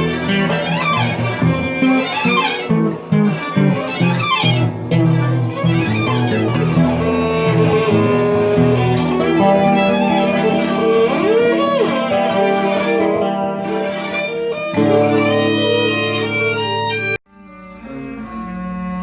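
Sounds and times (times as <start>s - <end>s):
acoustic guitar: 0.0s - 19.0s
violin: 0.0s - 19.0s.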